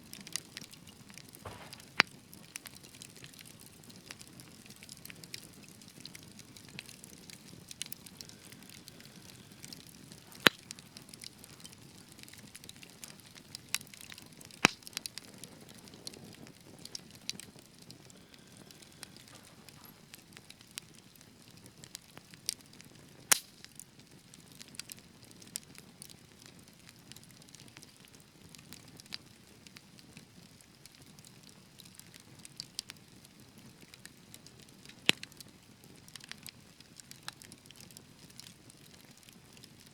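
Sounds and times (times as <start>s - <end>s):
wood fire crackling: 0.0s - 39.9s
loud sharp pops of fire: 0.2s - 20.7s, 23.2s - 24.0s.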